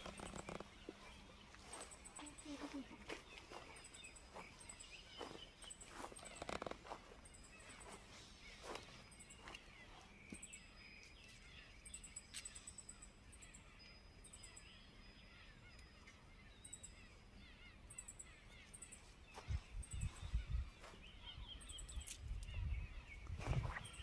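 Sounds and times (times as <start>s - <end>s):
distant bird calls: 0.0s - 24.0s
wind buffeting microphone: 19.3s - 24.0s.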